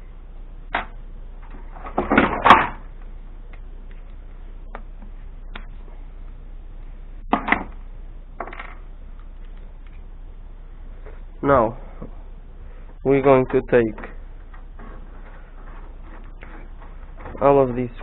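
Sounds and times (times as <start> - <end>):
computer case knocks and clunks: 1.8 - 2.8.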